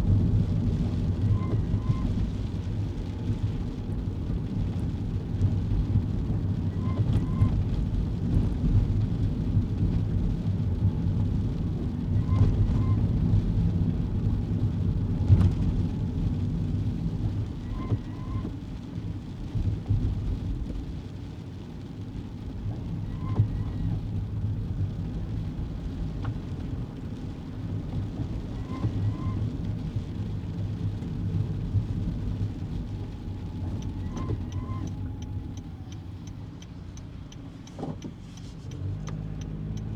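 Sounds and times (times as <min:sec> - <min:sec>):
tyre and engine rumble: 0:00.0 - 0:39.9
windscreen wiper squeak: 0:01.0 - 0:02.5, 0:06.6 - 0:07.7, 0:12.0 - 0:13.4, 0:17.3 - 0:18.9, 0:22.6 - 0:25.2, 0:26.0 - 0:36.3.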